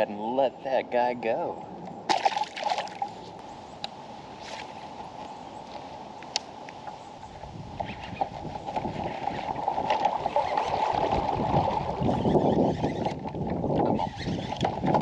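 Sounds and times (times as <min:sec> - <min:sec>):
water splashing against kayak hull: 0:02.1 - 0:03.3, 0:07.8 - 0:15.0.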